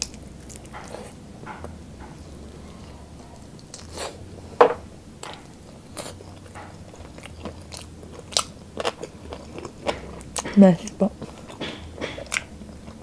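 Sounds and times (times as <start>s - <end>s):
wet chewing: 5.2s - 13.0s.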